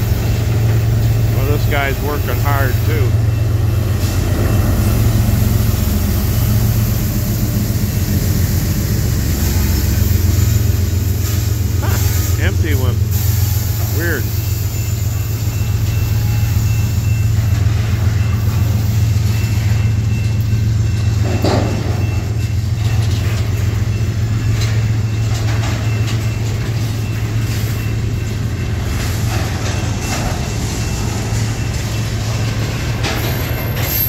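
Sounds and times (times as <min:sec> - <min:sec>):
flatcars rolling on track: 0:00.0 - 0:34.0
clanks and wheel clicks: 0:29.0 - 0:34.0.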